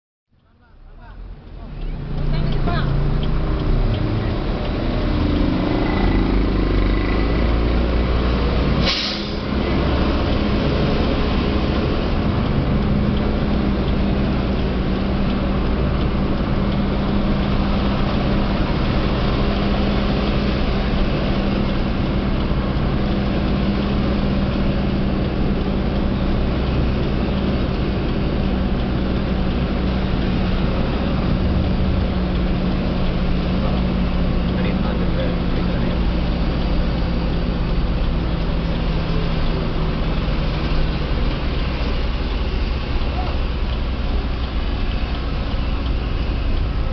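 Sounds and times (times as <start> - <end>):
diesel truck engine running: 0.5 - 46.9
air brake hiss: 8.8 - 9.5.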